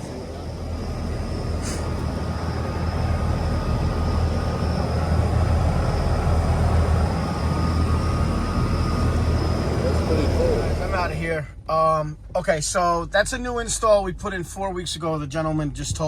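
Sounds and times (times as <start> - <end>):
faint high whine: 0.0 - 14.0
air conditioner unit humming: 0.0 - 16.0.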